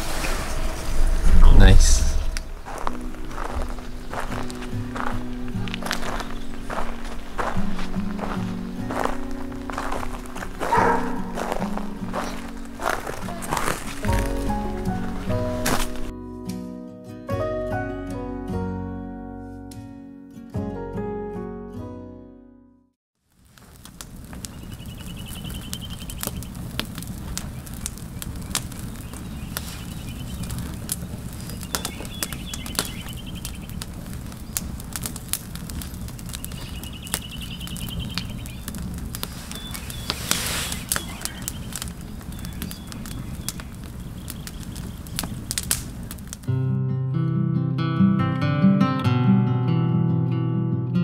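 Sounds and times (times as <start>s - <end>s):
low rumble: 0.0s - 6.1s
sharp crackles and clicks: 0.0s - 16.1s, 23.2s - 46.6s
bird trilling: 24.5s - 26.5s, 31.4s - 33.8s, 39.5s - 45.3s.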